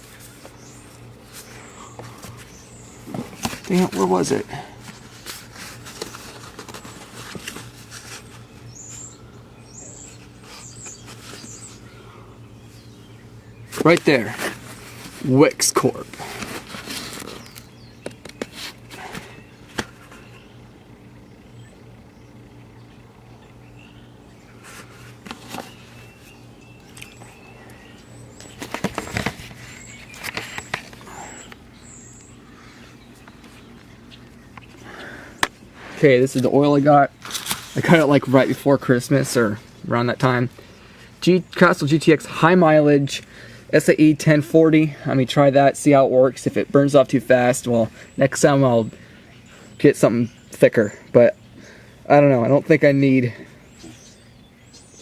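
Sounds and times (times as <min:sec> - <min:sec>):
steady low hum: 0:00.0 - 0:55.0
clicks and knocks of objects handled: 0:28.4 - 0:31.6.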